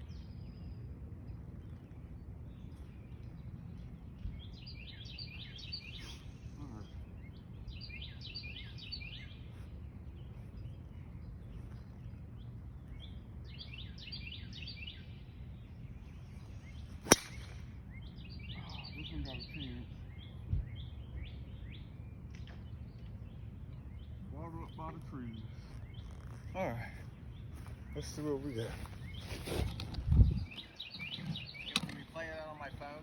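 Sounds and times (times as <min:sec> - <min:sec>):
low outdoor rumble: 0:00.0 - 0:33.0
songbird chirping: 0:00.0 - 0:33.0
golf club striking ball: 0:17.0 - 0:17.7.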